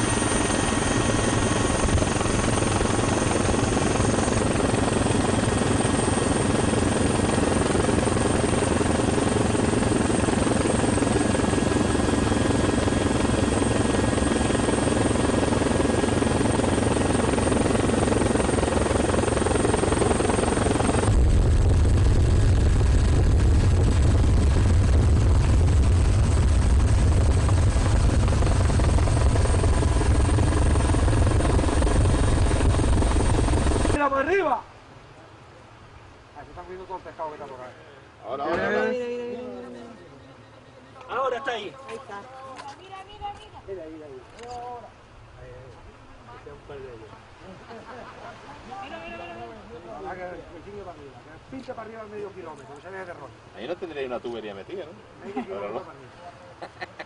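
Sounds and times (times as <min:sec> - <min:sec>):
helicopter engine and rotor: 0:00.0 - 0:34.0.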